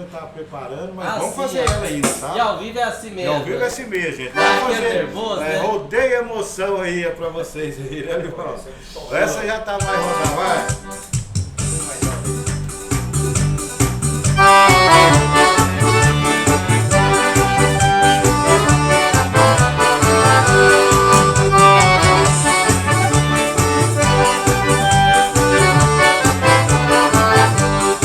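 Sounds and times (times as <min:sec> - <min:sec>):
steady drum beat: 0:01.7 - 0:02.3, 0:09.7 - 0:28.0
accordion melody: 0:04.3 - 0:05.6, 0:09.8 - 0:28.0
bass line: 0:09.9 - 0:28.0.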